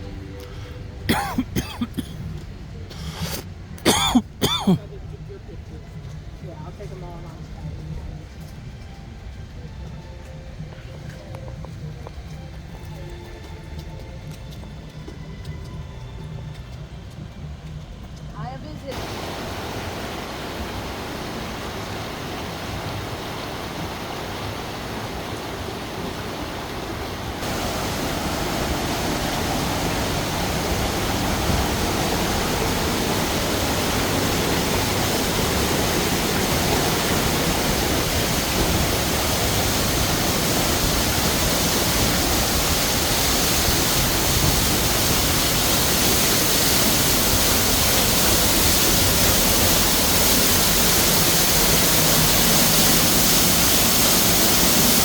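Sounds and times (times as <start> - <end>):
falling water rushing: 18.9 - 55.0.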